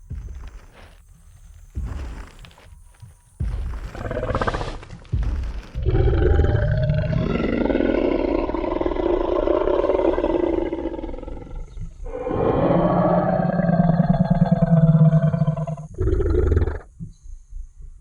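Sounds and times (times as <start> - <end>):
deep dinosaur roar: 4.0 - 4.8, 5.8 - 16.9.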